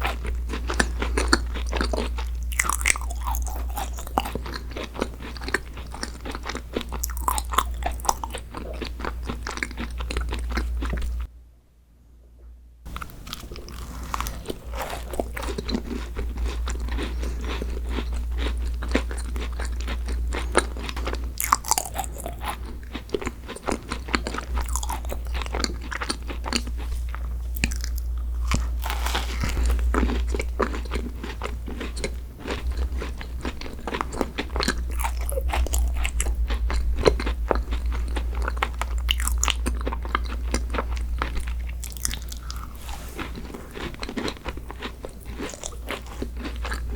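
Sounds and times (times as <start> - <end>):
person chewing crunchy food: 0.0 - 11.3, 12.9 - 46.9
low hum: 24.6 - 41.8.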